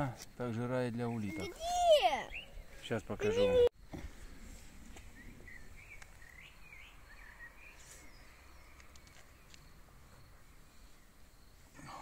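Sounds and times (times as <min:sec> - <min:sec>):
bird chirping: 0:00.8 - 0:03.7, 0:04.9 - 0:11.6.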